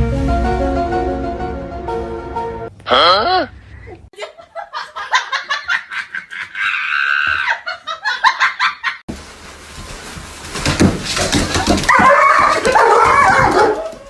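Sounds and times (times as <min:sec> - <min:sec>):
person laughing hard: 0:02.9 - 0:09.0.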